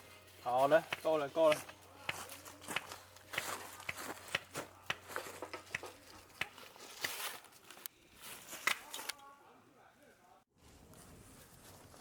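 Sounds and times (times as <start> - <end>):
firewood clicking and snapping: 0.9 - 7.9.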